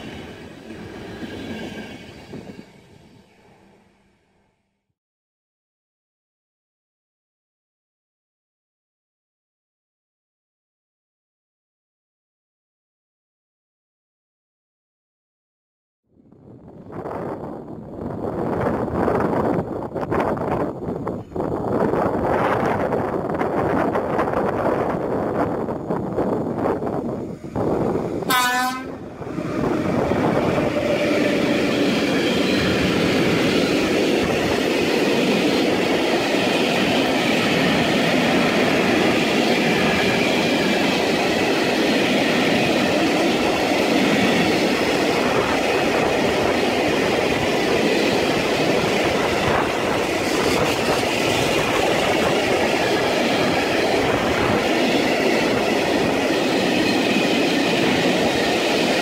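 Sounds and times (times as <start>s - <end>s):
train wheels clacking over rails: 29.3s - 59.0s.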